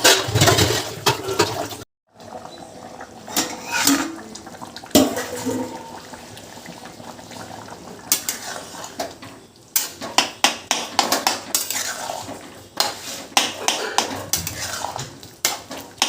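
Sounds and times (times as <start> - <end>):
metal utensils clinking against pots: 0.0 - 1.8, 3.3 - 6.1, 8.1 - 16.0.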